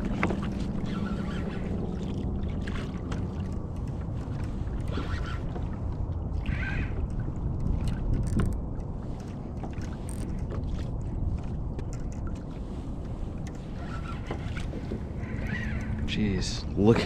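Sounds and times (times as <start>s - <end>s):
water against kayak hull: 0.0s - 17.0s
wind rumbling on microphone: 0.0s - 17.0s
small clicks: 8.1s - 8.6s.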